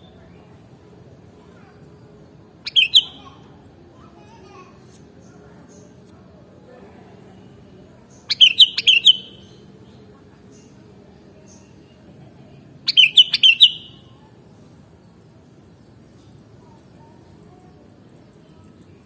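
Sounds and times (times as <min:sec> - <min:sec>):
bulbul singing: 0:02.6 - 0:03.6, 0:08.0 - 0:10.7, 0:12.9 - 0:14.2.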